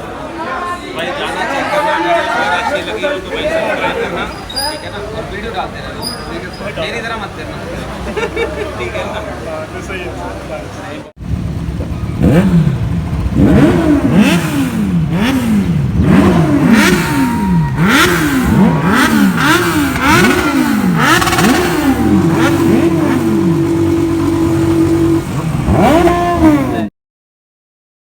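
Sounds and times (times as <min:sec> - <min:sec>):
motorcycle engine revving: 0:11.2 - 0:26.9.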